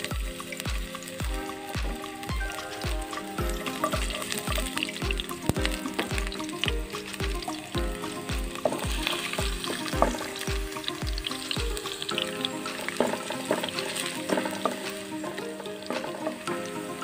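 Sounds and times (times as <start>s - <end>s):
wooden spatula stirring in pan: 0.0s - 16.5s
garlic sizzling in hot oil: 0.0s - 17.0s
music with kick-drum beat: 0.1s - 12.1s.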